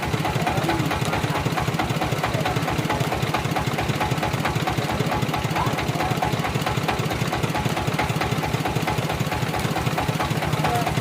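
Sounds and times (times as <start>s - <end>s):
sawmill engine running: 0.0s - 11.0s.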